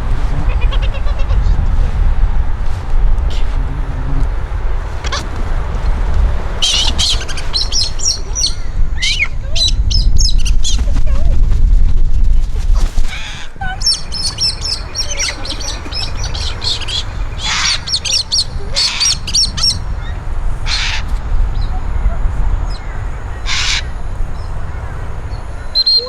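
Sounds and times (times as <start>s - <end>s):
steady low rumble: 0.0s - 26.0s
high twittering bird chirps: 6.6s - 10.8s, 13.6s - 26.0s.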